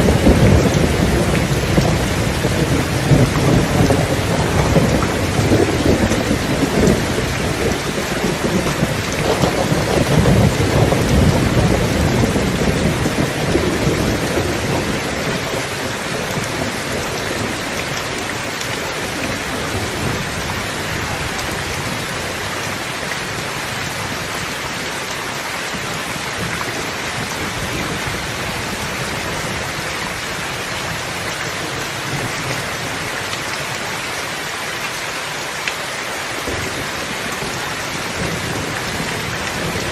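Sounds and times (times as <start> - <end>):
deep rumble of thunder: 0.0 - 24.4, 36.4 - 39.9
heavy rain falling: 0.0 - 39.9.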